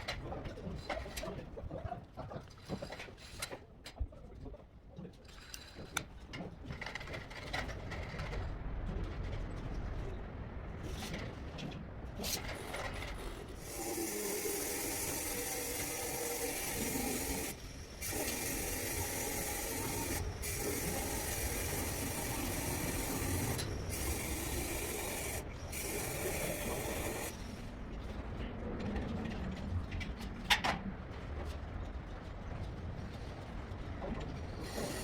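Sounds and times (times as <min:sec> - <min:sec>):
power tool hissing and humming: 0:13.6 - 0:27.5, 0:34.6 - 0:35.0.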